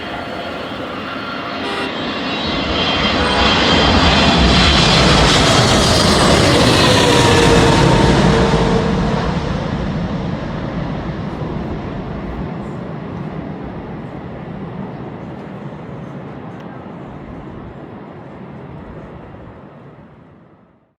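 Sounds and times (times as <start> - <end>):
jet engine rumble: 0.0 - 20.8.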